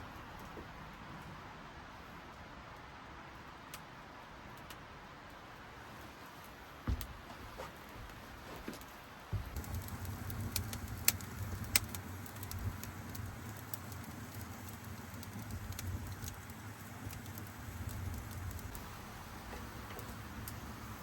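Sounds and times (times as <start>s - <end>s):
wood fire crackling: 6.0s - 21.0s.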